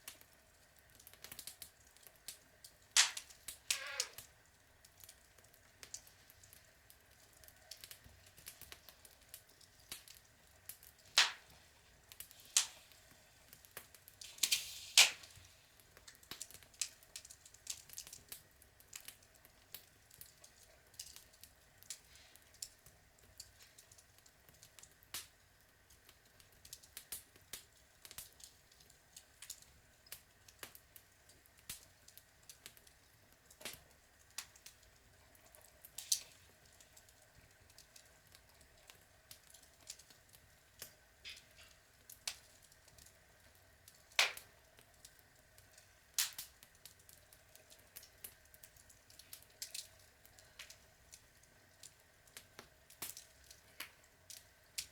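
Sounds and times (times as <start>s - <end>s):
log fire crackling: 0.0s - 54.9s
faint hiss: 2.3s - 17.6s, 21.4s - 25.4s.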